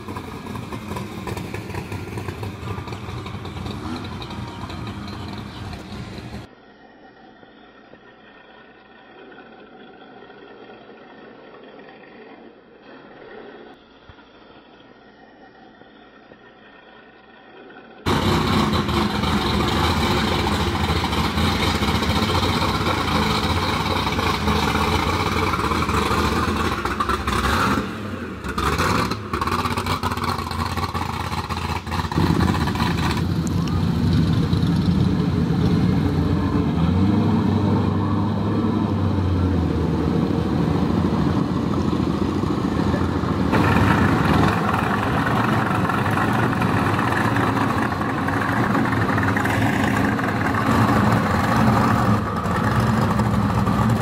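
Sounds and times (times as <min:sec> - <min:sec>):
car engines idling and revving: 0:00.0 - 0:06.6, 0:18.0 - 0:54.0
supercharged car engine: 0:00.0 - 0:09.8, 0:18.0 - 0:54.0.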